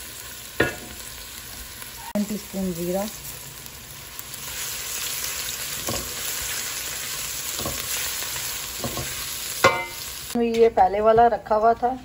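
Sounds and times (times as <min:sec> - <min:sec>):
garlic sizzling in hot oil: 0:00.0 - 0:10.4
spatula scraping pan: 0:07.5 - 0:10.0.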